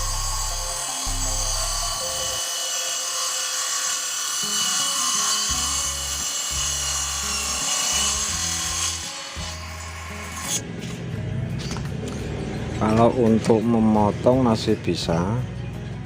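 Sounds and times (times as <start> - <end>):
electric motor running: 0.0 - 10.7
table saw cutting wood: 0.0 - 10.7.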